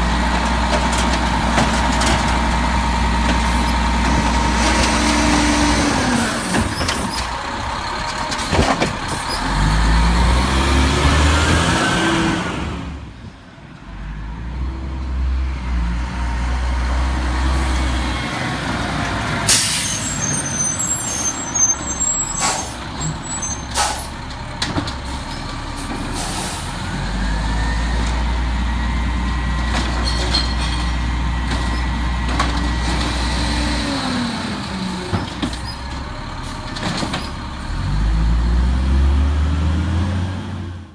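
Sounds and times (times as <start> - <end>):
diesel engine running: 0.0 - 13.2
air brake hisses: 19.5 - 22.8, 23.6 - 24.2, 26.1 - 26.8.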